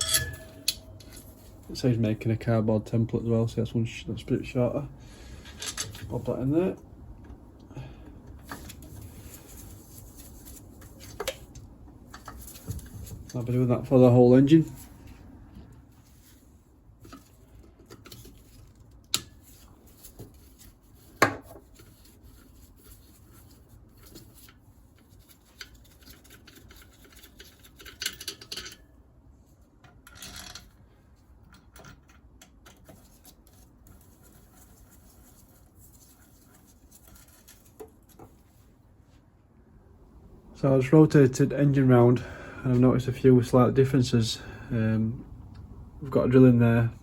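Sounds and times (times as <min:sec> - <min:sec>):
metal clinks and knocks: 0:00.0 - 0:01.7
metal parts scraping: 0:00.0 - 0:01.7.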